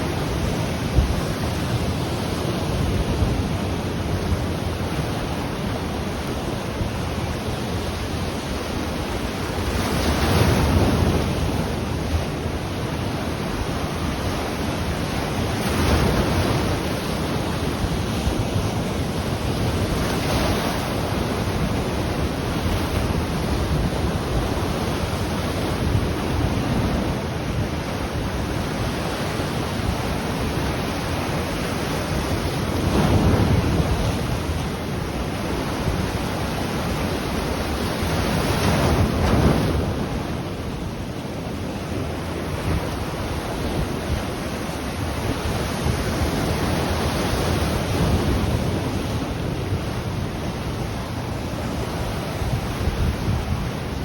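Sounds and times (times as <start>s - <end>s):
ocean surf washing on shore: 0.0s - 54.0s
wave breaking: 14.1s - 54.0s.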